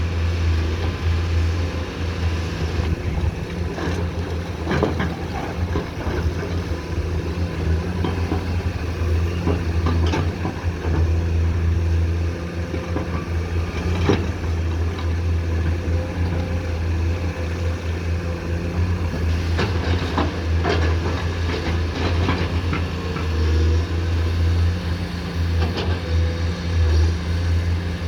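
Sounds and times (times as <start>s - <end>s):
excavator diesel engine running: 0.0s - 28.0s
excavator bucket knocking and scraping: 2.7s - 11.9s, 18.8s - 23.8s.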